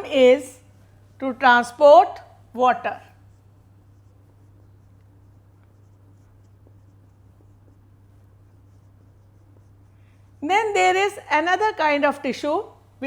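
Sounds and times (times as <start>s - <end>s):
low electrical hum: 0.0s - 13.0s
pen scratching while writing: 3.1s - 10.1s.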